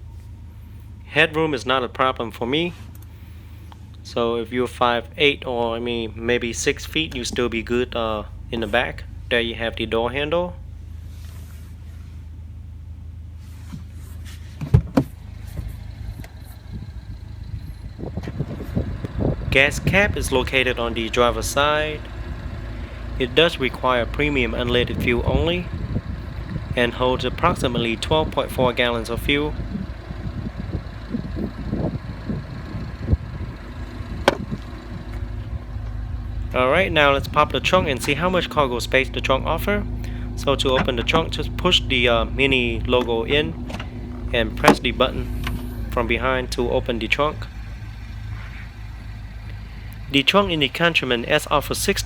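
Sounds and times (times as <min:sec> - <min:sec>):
low outdoor rumble: 0:00.0 - 0:52.0
steady low hum: 0:00.0 - 0:52.0
light knocks and rustles: 0:13.5 - 0:16.6
car door thumps: 0:14.6 - 0:16.4, 0:34.2 - 0:36.0, 0:43.5 - 0:45.7.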